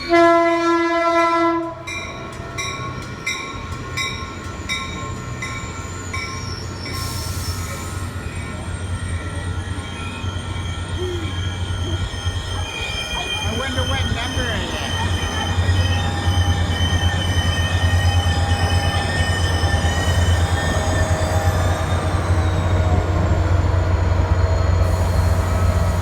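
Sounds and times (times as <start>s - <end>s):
diesel locomotive rumble: 0.0s - 26.0s
train horn chord: 0.1s - 1.9s
train bell dinging: 1.5s - 26.0s
wheels and brakes squealing: 3.6s - 26.0s.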